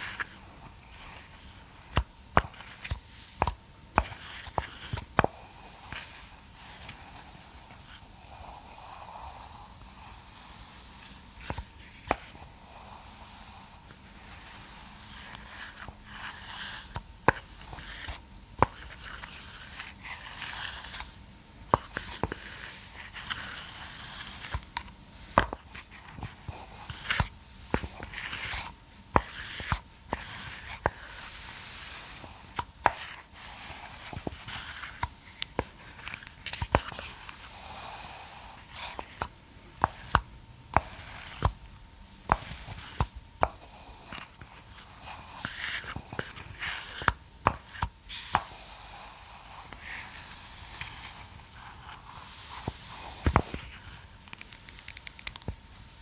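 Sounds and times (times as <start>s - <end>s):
scratchy rustling and scraping: 0.0s - 41.6s, 42.2s - 54.7s
sharp clicks and taps: 54.2s - 55.6s.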